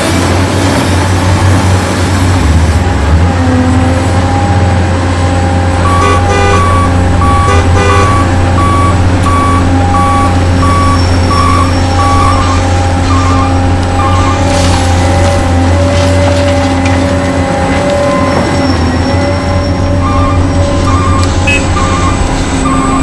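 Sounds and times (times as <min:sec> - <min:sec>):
reversing beeper: 0:05.8 - 0:15.4, 0:17.9 - 0:23.0.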